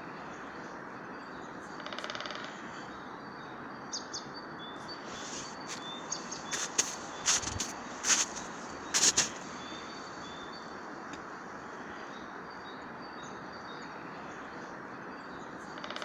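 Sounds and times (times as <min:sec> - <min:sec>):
small birds chirping: 0:02.5 - 0:15.8
forest air hiss: 0:04.9 - 0:12.6
loud sharp crunches: 0:05.2 - 0:09.4.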